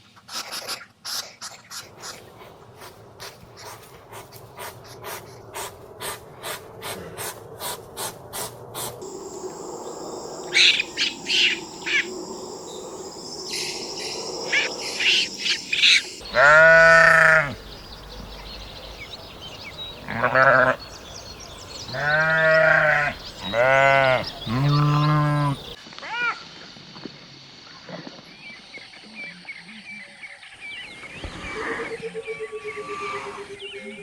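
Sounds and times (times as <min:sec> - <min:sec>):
high whistling tones: 0:09.0 - 0:16.2
birds chirping: 0:09.0 - 0:25.8
drawn-out bleat: 0:16.3 - 0:17.6, 0:20.0 - 0:20.8, 0:21.9 - 0:25.6.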